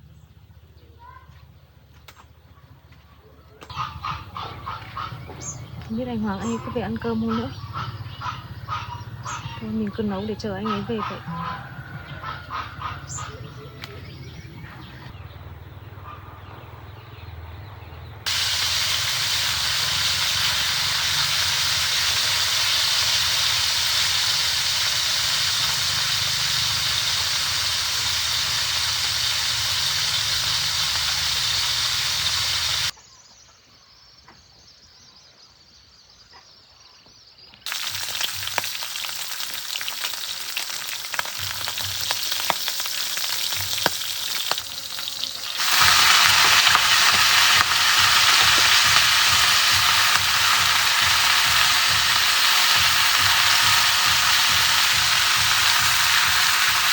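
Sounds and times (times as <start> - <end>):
food sizzling in a pan: 18.3 - 32.9, 37.7 - 56.9
crackling: 37.7 - 56.9.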